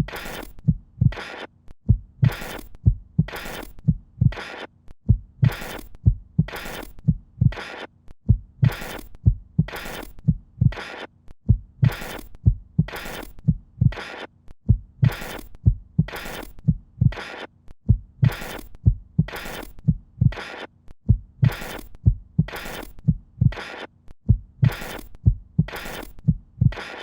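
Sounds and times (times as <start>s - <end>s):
low heartbeat-like thumps: 0.0s - 1.2s, 1.9s - 4.4s, 5.1s - 7.6s, 8.2s - 10.8s, 11.4s - 14.0s, 14.6s - 17.2s, 17.8s - 20.4s, 21.0s - 23.6s, 24.2s - 26.8s.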